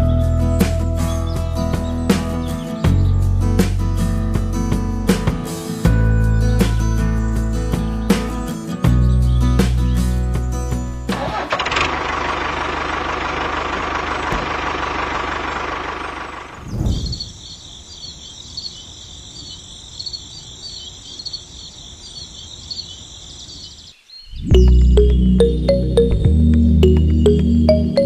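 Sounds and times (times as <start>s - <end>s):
insect-like chirping: 15.2s - 25.1s.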